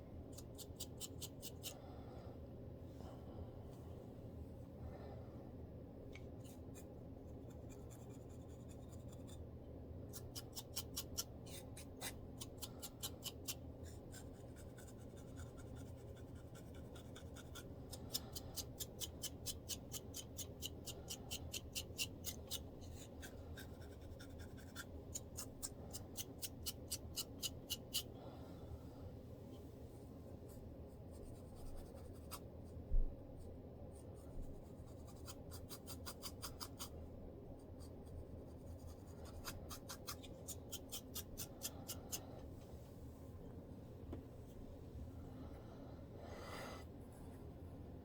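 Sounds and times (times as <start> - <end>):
scratching on scalp: 6.4 - 9.4, 10.1 - 28.1, 30.9 - 32.8, 33.9 - 37.0, 37.6 - 42.2.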